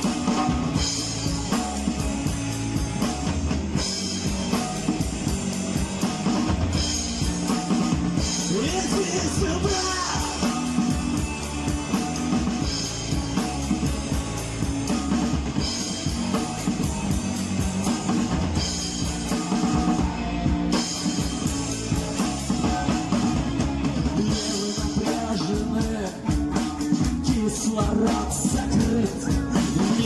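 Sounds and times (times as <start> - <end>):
driving drum kit: 0.0 - 30.0
guitar: 0.0 - 30.0
rock band playing: 0.0 - 30.0
person singing: 8.3 - 11.7, 19.0 - 30.0.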